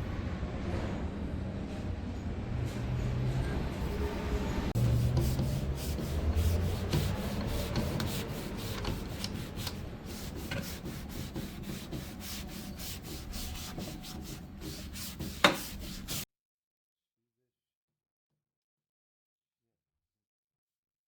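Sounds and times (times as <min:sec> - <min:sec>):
hand sanding wood: 0:04.8 - 0:16.3.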